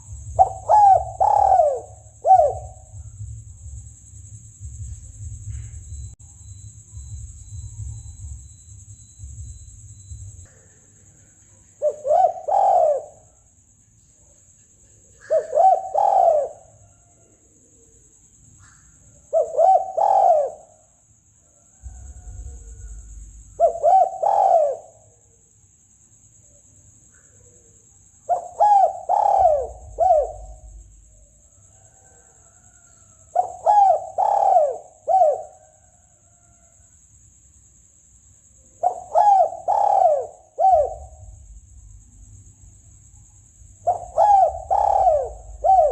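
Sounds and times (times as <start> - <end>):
dove cooing: 0.0 - 3.4, 11.7 - 13.4, 15.1 - 17.1, 18.6 - 20.9, 21.8 - 25.1, 28.3 - 31.2, 32.0 - 36.4, 38.8 - 42.0, 43.7 - 45.9.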